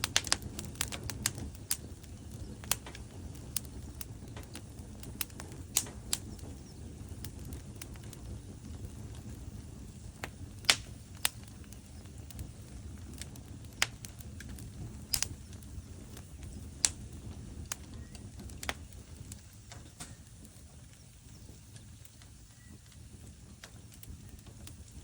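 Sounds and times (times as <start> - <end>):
fire crackling and popping: 0.0 - 25.0
low fire rumble: 0.0 - 25.0.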